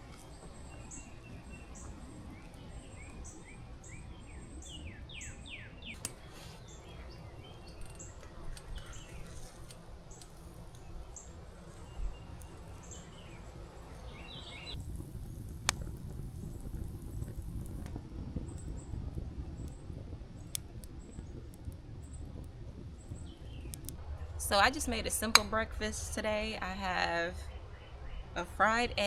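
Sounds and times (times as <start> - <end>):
small birds chirping: 0.0 - 17.9, 23.0 - 23.9
steady low background noise: 0.0 - 29.0
sharp clicks: 5.9 - 13.2, 23.0 - 25.6.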